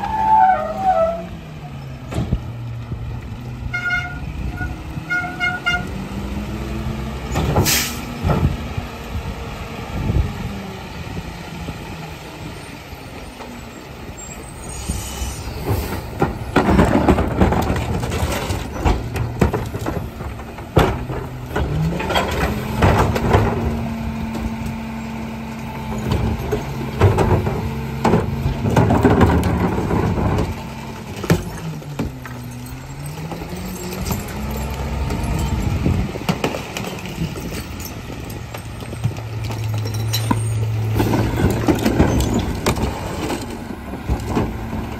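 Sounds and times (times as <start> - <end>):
bins banging against truck: 7.3 - 8.6, 15.5 - 24.6, 25.8 - 44.9
garbage truck engine revving: 15.2 - 44.9.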